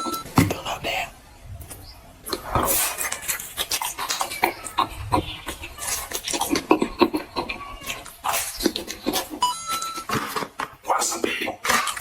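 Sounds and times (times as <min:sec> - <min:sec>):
food crunching while eating: 0:11.6 - 0:12.0.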